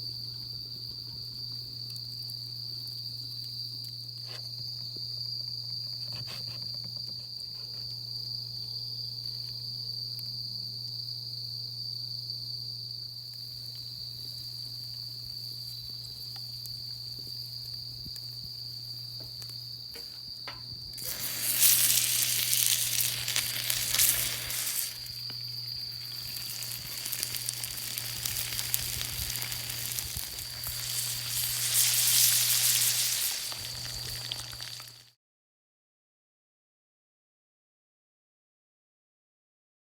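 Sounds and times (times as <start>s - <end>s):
high insect trill: 0.0s - 35.1s
food sizzling over a fire: 13.2s - 35.2s.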